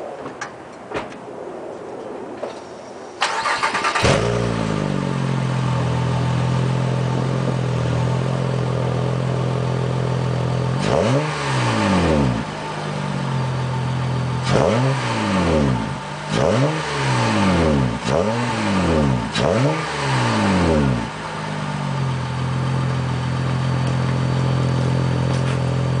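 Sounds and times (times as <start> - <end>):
car engine revving: 3.3 - 26.0
car engine idling: 3.4 - 11.0, 12.2 - 14.5, 20.5 - 26.0.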